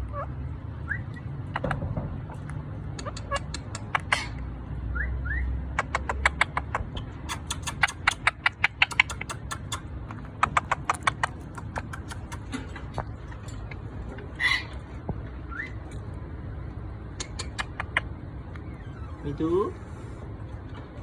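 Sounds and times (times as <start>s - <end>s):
parrot clicking: 2.4s - 4.3s, 5.8s - 13.8s, 17.1s - 18.1s
parrot chirp: 3.0s - 12.6s, 14.3s - 15.9s.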